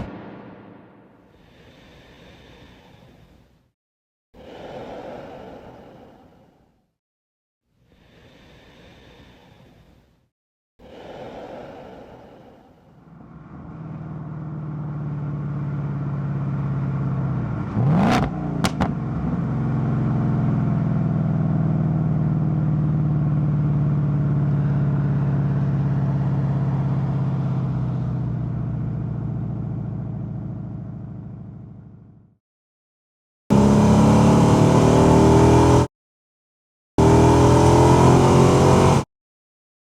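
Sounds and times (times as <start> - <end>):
sharp loud burst: 0.0 - 1.2
car engine running under load: 13.2 - 32.2.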